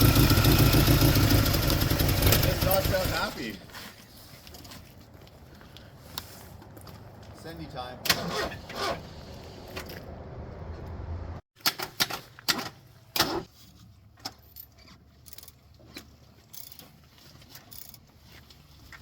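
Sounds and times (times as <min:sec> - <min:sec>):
car engine humming: 0:00.0 - 0:03.1.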